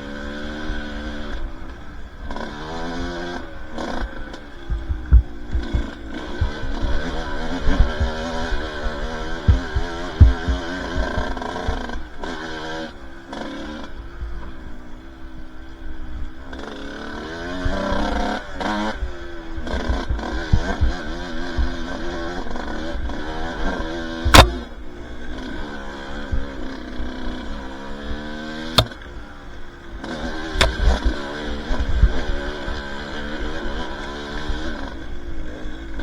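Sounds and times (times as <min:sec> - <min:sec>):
dirt bike engine revving: 0:24.2 - 0:24.6
sharp knocks: 0:24.3 - 0:24.6, 0:28.8 - 0:29.1.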